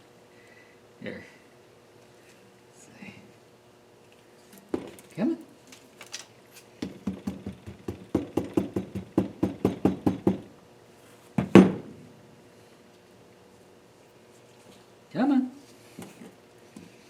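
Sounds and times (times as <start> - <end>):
rapid metal-on-metal tapping: 6.8 - 10.4
loud double knock: 6.8 - 10.5.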